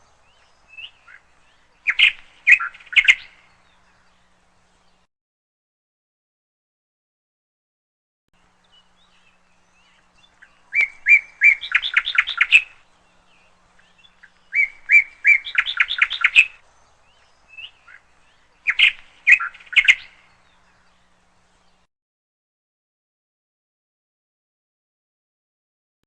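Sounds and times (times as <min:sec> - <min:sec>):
canary chirping and trilling: 0:10.4 - 0:12.8, 0:13.9 - 0:16.6, 0:18.7 - 0:20.1.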